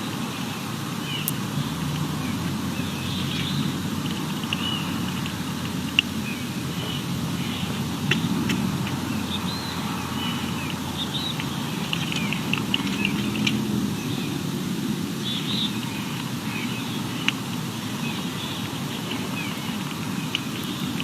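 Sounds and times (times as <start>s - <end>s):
steady low rumble: 0.0s - 21.0s
high bird chirps: 1.1s - 13.4s.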